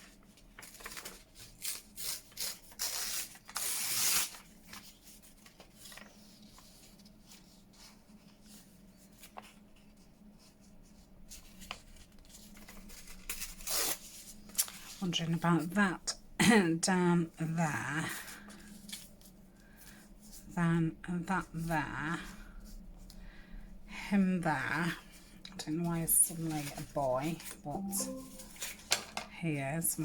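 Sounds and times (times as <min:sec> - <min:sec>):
paper rustling and rubbing: 0:00.0 - 0:15.0, 0:26.0 - 0:29.0.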